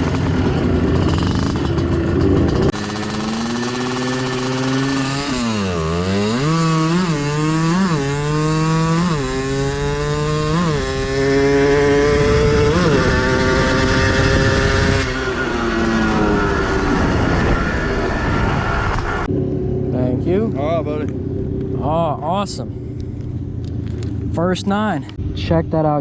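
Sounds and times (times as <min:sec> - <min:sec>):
two-stroke engine accelerating: 0:00.0 - 0:26.0.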